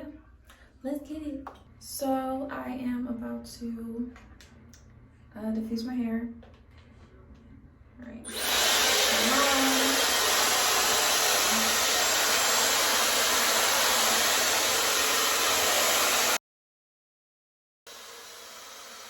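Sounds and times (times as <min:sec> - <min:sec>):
hair dryer running: 0:08.2 - 0:16.4, 0:17.9 - 0:19.0.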